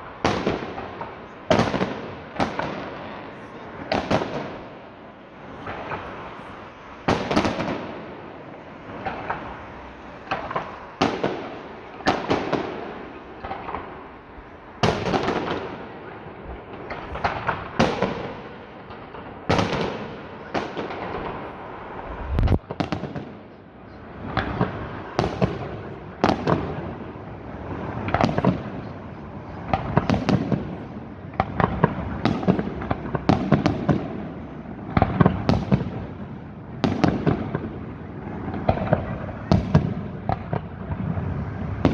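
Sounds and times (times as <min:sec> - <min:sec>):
fireworks crackling: 0:00.0 - 0:23.3
fireworks bangs: 0:00.0 - 0:23.5, 0:24.1 - 0:41.9.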